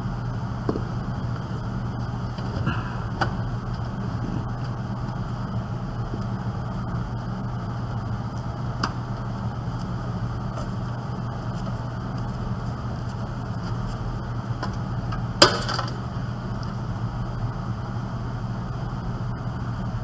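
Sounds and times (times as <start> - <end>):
steady low hum: 0.0 - 20.0
metal computer parts handled: 14.6 - 16.1.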